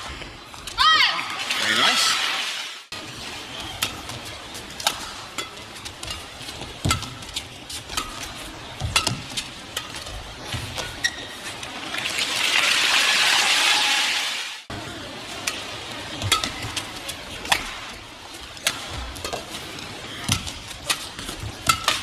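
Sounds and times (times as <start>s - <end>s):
rackets striking shuttlecock: 4.8s - 10.2s, 15.4s - 17.9s, 20.2s - 22.0s
shoe squeaks on court: 11.0s - 11.4s
crowd cheering and applause: 12.0s - 14.6s.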